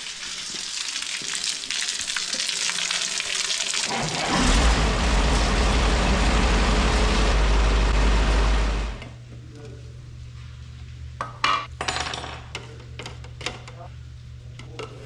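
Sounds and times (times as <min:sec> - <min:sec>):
motor humming: 0:03.9 - 0:09.2.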